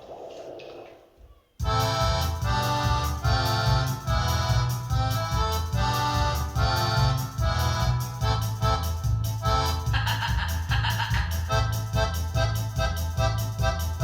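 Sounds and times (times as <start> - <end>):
electronic keyboard tune: 1.6 - 10.1, 11.4 - 14.0
bass line: 1.6 - 14.0
steady beat: 1.6 - 14.0.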